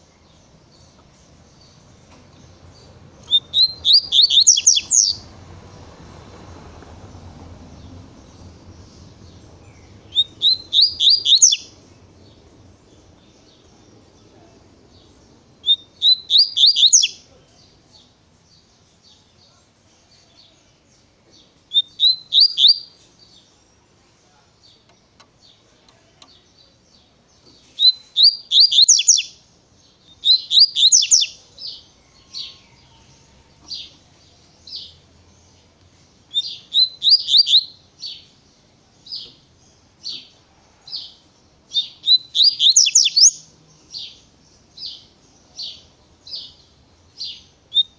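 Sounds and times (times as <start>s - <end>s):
bird singing high-pitched phrases: 0.0s - 5.3s, 8.2s - 24.9s, 25.5s - 32.7s, 33.8s - 38.4s, 41.7s - 47.9s
sharp bird notes: 3.2s - 5.2s, 9.2s - 11.8s, 15.6s - 17.3s, 41.8s - 43.4s.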